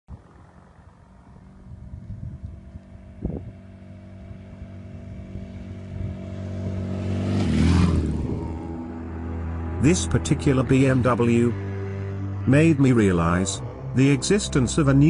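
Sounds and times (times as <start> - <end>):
motorcycle engine running: 0.1 - 15.0.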